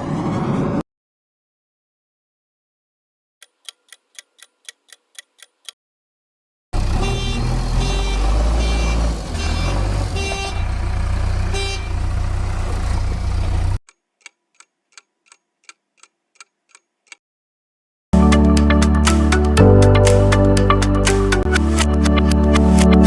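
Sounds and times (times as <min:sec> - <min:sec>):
clock ticking: 0:03.4 - 0:05.8, 0:13.9 - 0:17.2
short horn honks: 0:06.8 - 0:10.7, 0:11.4 - 0:12.1
deep engine rumble: 0:06.8 - 0:13.8.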